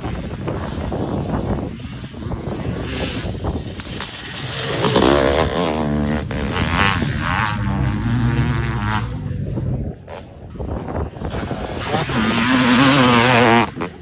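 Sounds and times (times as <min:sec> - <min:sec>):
motocross engine revving: 0:02.3 - 0:10.4, 0:11.2 - 0:14.0.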